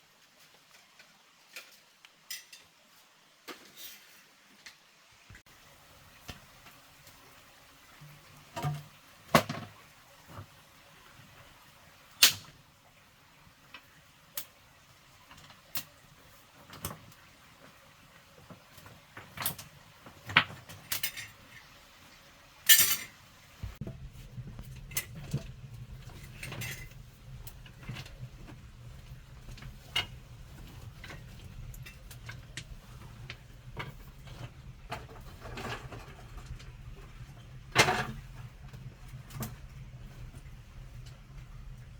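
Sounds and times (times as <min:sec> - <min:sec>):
low steady hum: 0:21.9 - 0:41.9.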